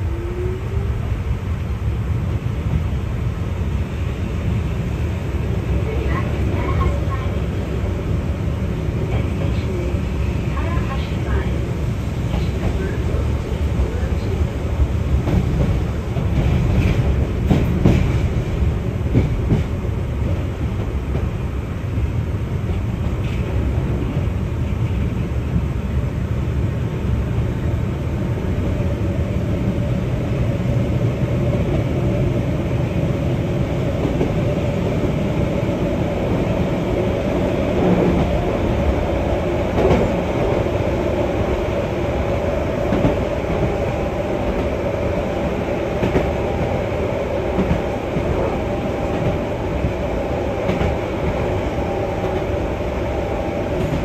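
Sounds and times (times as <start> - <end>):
train rumbling on track: 0.0 - 54.0
clacks over rail joints: 15.2 - 18.4.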